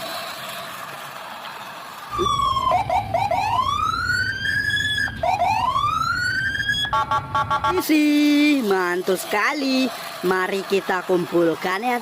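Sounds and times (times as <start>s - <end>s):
toy electronic wailing siren: 2.1s - 7.8s
low rumble: 2.1s - 7.9s.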